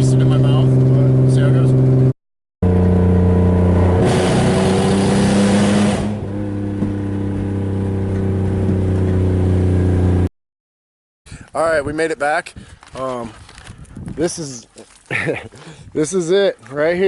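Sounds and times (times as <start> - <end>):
car engine droning: 0.0 - 10.3.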